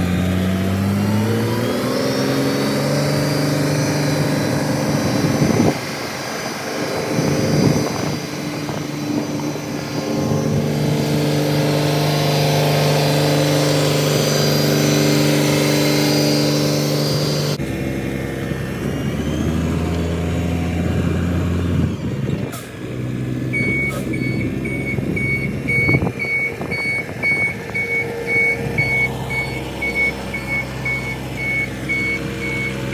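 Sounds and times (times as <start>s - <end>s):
truck diesel engine running: 0.0s - 32.9s
reversing alarm beeping: 23.5s - 32.9s.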